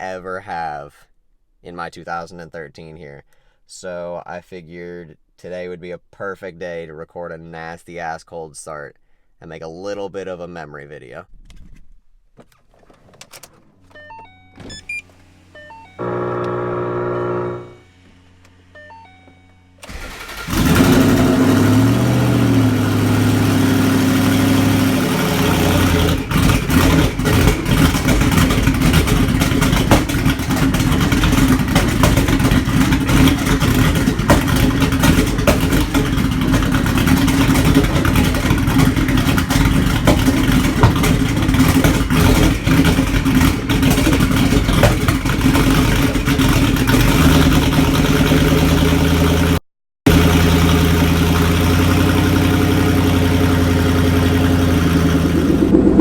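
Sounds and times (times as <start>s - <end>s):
car engine cold start idling: 14.7s - 19.2s, 19.8s - 56.0s.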